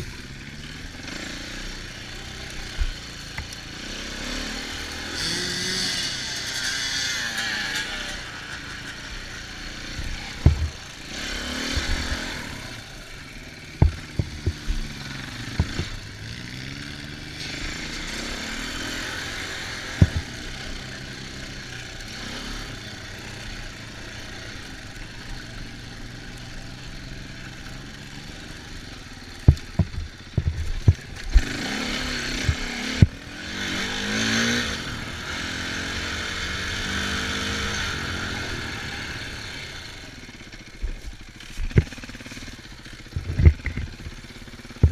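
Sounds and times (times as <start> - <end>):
off-road vehicle engine revving: 0.0 - 44.9
sharp knocks: 10.4 - 10.8, 13.8 - 14.8, 15.6 - 16.0, 20.0 - 20.3, 29.5 - 31.0.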